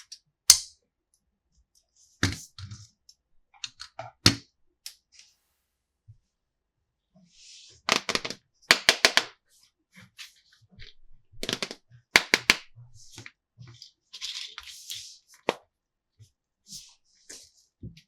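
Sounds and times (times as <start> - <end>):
plastic toy pieces clattering: 11.4 - 12.6.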